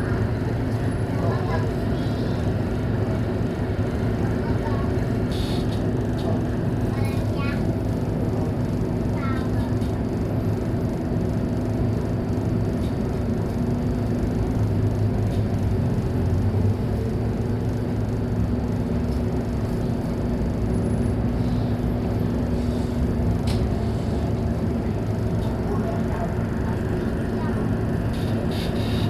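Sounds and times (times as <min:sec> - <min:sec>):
bus diesel engine running: 0:00.0 - 0:29.0.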